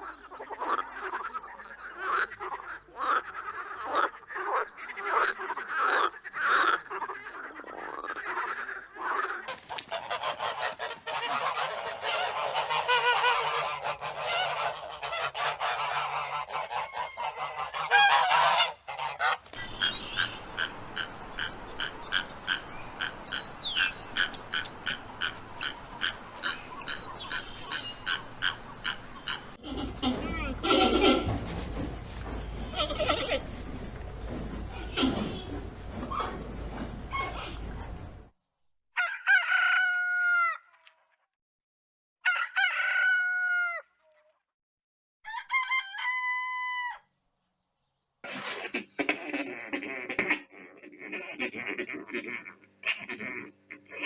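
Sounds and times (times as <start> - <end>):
chorus of animal calls: 0.0 - 31.4, 49.7 - 54.0
animal honking calls: 10.0 - 31.4
fast pulsing animal calls: 16.8 - 29.6.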